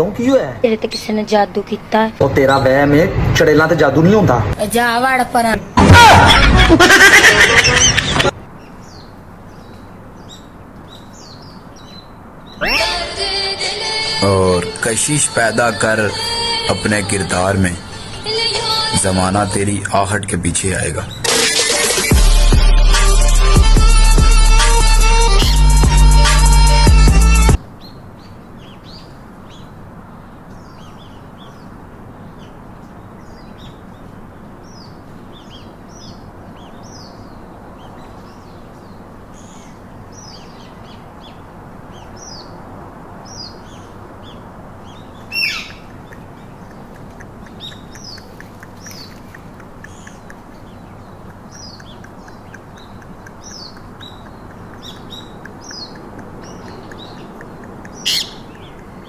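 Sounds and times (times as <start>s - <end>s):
birds chirping: 0.0s - 59.0s
sharp bird call: 12.5s - 13.4s, 45.3s - 46.3s, 58.0s - 58.6s.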